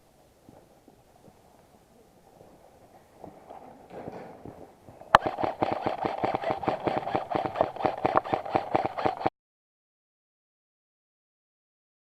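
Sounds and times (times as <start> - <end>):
airsoft gun shots: 5.2 - 9.3.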